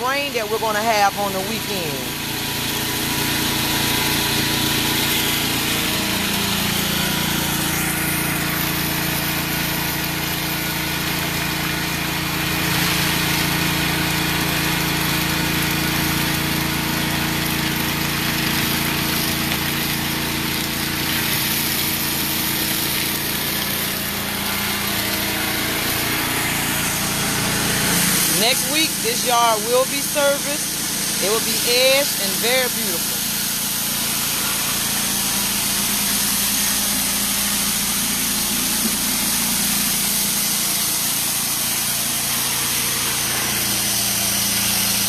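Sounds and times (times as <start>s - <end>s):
small gasoline engine running: 0.0s - 45.0s
water spray hissing on pavement: 0.0s - 45.0s.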